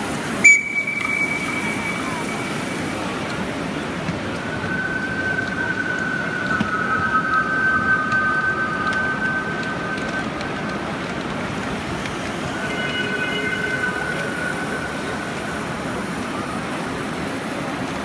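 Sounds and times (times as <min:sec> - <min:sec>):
steam train rolling and rumbling: 0:00.0 - 0:18.0
high thin squeal: 0:00.4 - 0:03.2.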